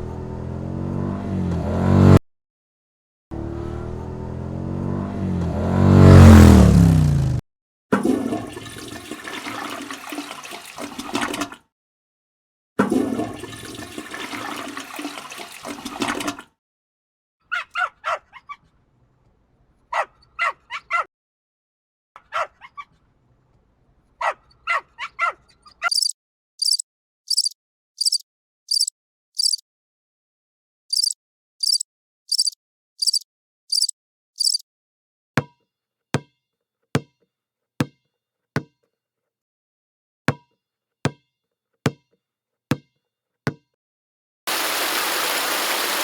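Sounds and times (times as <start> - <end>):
engine revving: 0.0 - 2.2, 3.3 - 7.4
rushing water: 8.5 - 11.4, 13.2 - 16.3, 44.5 - 46.0
dog barking and yipping: 17.5 - 18.6, 19.9 - 21.1, 22.3 - 22.8, 24.2 - 26.1
rapid high-pitched beeps: 25.9 - 29.6, 30.9 - 34.6.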